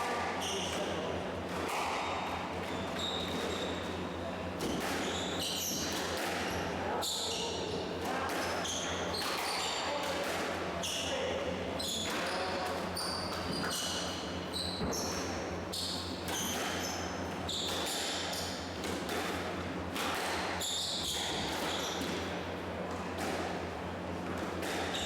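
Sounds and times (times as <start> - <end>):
squash ball hitting racket and walls: 0.1 - 4.0, 4.6 - 7.3, 8.0 - 10.6, 11.9 - 25.0
shoes squeaking on court floor: 0.4 - 1.0, 2.0 - 7.7, 11.8 - 18.8, 20.5 - 22.3, 24.7 - 25.0.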